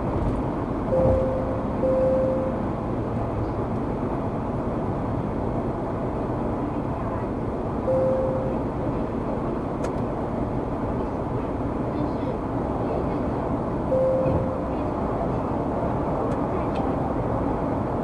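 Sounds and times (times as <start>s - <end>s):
car road and engine rumble: 0.0s - 18.0s
short electronic beep: 0.9s - 2.7s, 7.9s - 8.7s, 13.9s - 14.8s.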